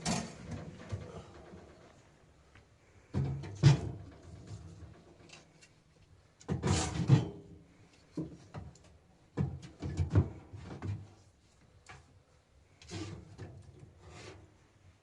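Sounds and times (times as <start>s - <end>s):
objects knocking and clattering: 0.0s - 1.9s, 3.1s - 5.5s, 8.1s - 11.2s.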